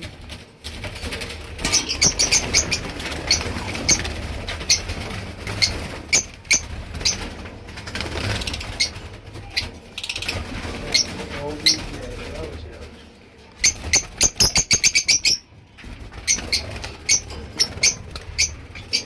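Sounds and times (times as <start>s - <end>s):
lovebirds chirping: 1.6s - 7.3s, 13.5s - 15.5s, 16.2s - 19.0s.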